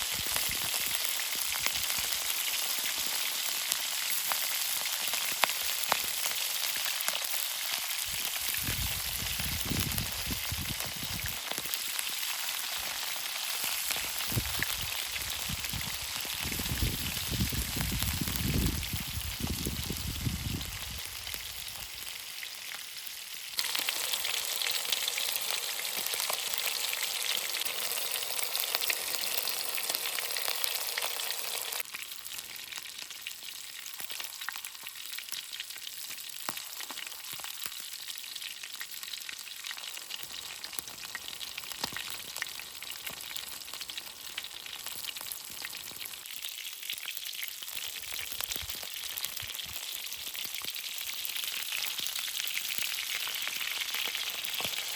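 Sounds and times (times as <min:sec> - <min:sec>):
food sizzling in a pan: 0:00.0 - 0:54.9
small crackles: 0:00.0 - 0:54.9.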